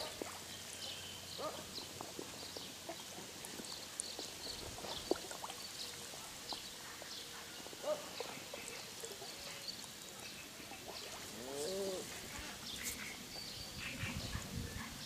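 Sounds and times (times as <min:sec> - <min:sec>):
low rising and falling bird call: 0:11.4 - 0:12.2.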